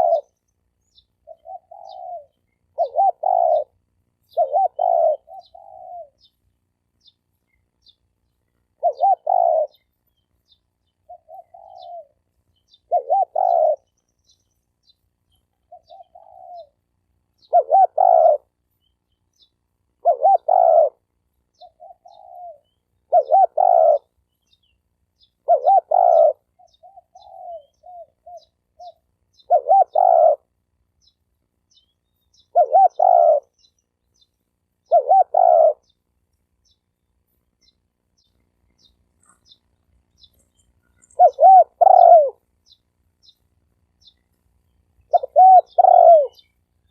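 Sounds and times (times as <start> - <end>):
dove cooing: 0.0 - 0.4, 1.2 - 6.3, 8.7 - 9.9, 11.0 - 14.4, 15.6 - 18.6, 20.0 - 24.2, 25.4 - 30.6, 32.4 - 33.7, 34.8 - 36.0, 40.2 - 42.5, 45.0 - 46.5
small birds chirping: 0.0 - 46.9.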